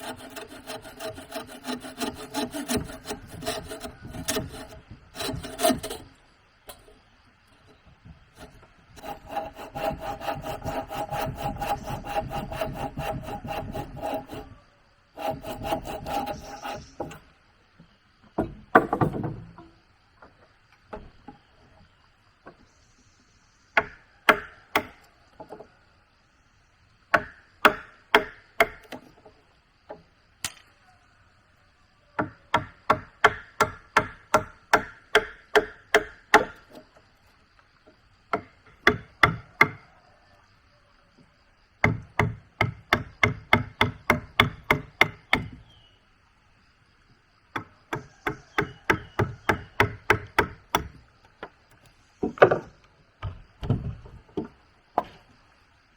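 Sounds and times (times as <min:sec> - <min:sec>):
hand saw cutting wood: 0:00.0 - 0:06.2, 0:08.4 - 0:14.6, 0:15.2 - 0:17.2
wood knocking on wood: 0:18.2 - 0:21.4, 0:47.5 - 0:55.3.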